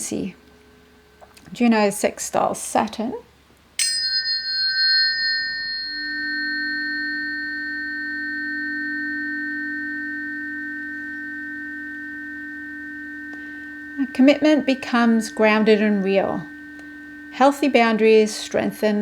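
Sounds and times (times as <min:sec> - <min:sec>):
low hum: 0:03.8 - 0:19.0
tuning forks ringing: 0:03.8 - 0:19.0.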